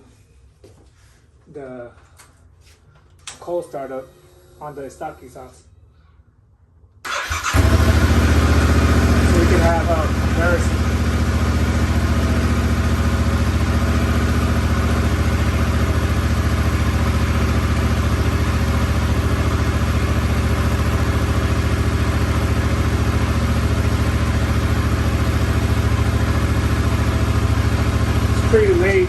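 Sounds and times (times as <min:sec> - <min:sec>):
motorcycle engine idling: 0:07.1 - 0:29.0.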